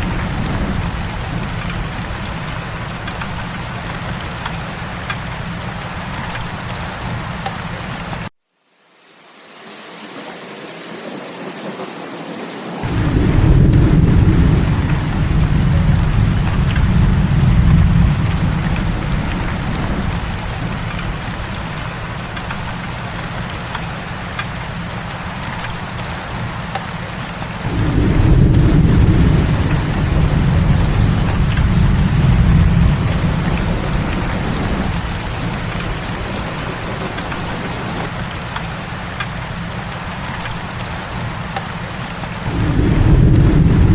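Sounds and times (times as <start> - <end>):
thunder rolling: 0.0 - 5.2, 12.8 - 24.4, 27.4 - 38.2, 42.4 - 43.9
heavy rain: 0.0 - 8.3, 9.0 - 43.9.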